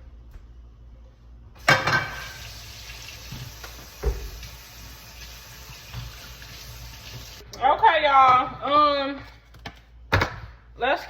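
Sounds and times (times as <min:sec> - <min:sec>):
faucet water running: 0:01.6 - 0:07.4.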